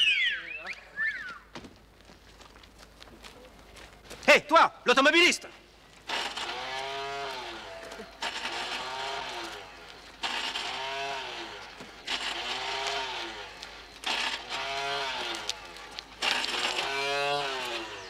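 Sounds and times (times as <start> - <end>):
car engine revving: 6.1 - 18.0.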